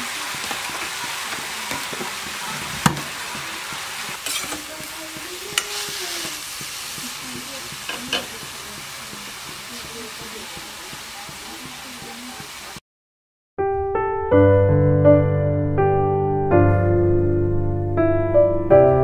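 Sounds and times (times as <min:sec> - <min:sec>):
greens sizzling in a pot: 0:00.0 - 0:12.8
utensil knocking against pan: 0:03.7 - 0:12.2.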